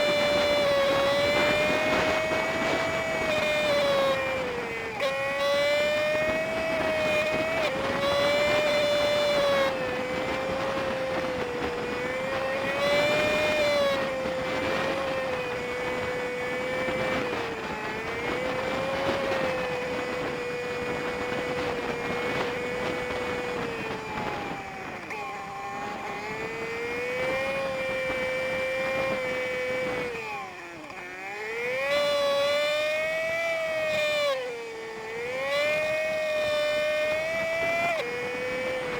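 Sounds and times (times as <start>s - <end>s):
motorcycle engine high whine: 0.0s - 38.9s.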